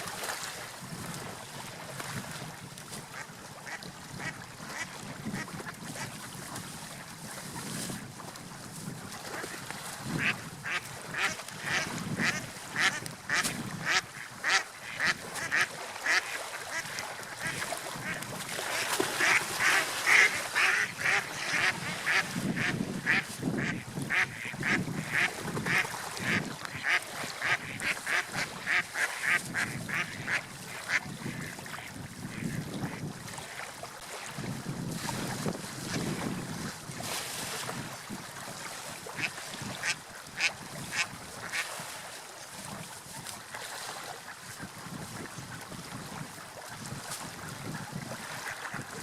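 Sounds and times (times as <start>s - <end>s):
water and wind: 0.0s - 49.0s
ducks or geese calling: 10.2s - 31.5s.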